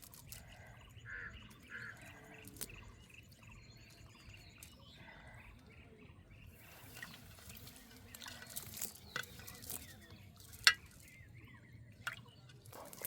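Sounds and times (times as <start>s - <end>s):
water splashing and trickling: 6.5s - 13.0s.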